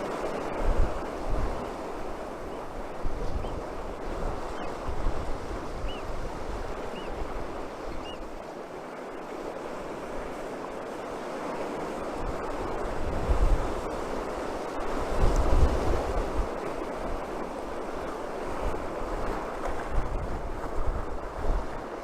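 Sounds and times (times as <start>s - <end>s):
wind buffeting microphone: 0.0s - 8.6s, 11.1s - 22.0s
surf washing on shore: 0.0s - 22.0s
bird short high calls: 8.0s - 8.2s.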